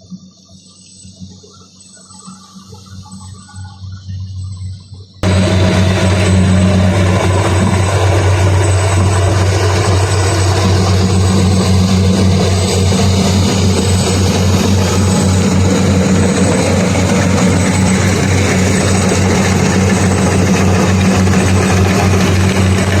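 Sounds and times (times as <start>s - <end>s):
combine harvester engine humming: 5.2s - 23.0s.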